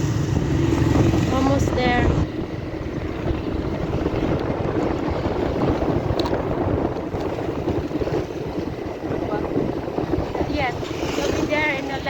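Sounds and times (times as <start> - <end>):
motorcycle engine: 0.0 - 12.0
road noise: 0.0 - 12.0
wind buffeting microphone: 0.0 - 12.0.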